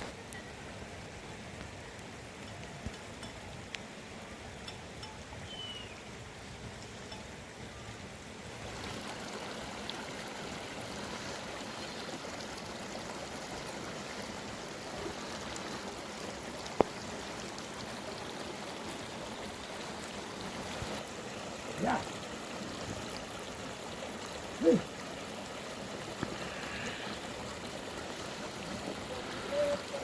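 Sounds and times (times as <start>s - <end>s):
rushing water: 0.0s - 30.0s.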